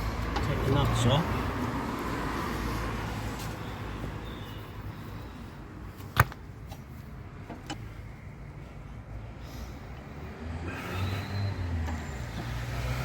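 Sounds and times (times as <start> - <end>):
wheel brace metal clicks: 6.0 - 7.9.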